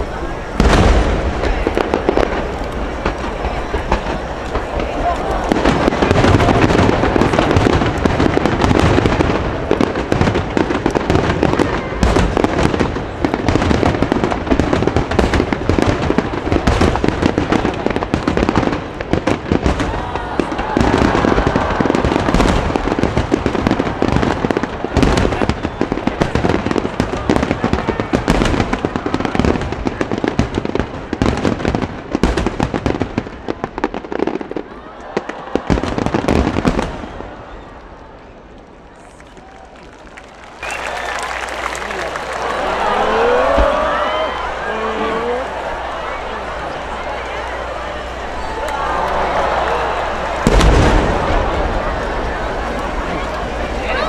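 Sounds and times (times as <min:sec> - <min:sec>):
firework shells bursting: 0:00.0 - 0:11.3, 0:40.5 - 0:54.0.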